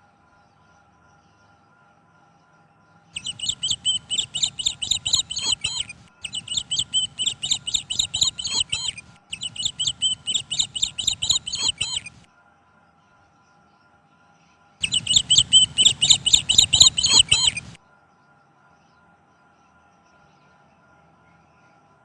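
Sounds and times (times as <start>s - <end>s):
lovebirds chirping: 3.2s - 12.2s, 14.8s - 17.8s.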